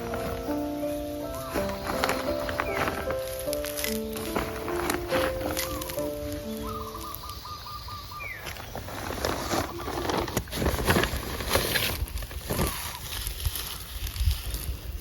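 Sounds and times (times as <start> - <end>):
rustling: 0.0 - 7.3, 8.4 - 15.0
background music: 0.0 - 7.4
bird calling repeated notes: 0.0 - 8.6.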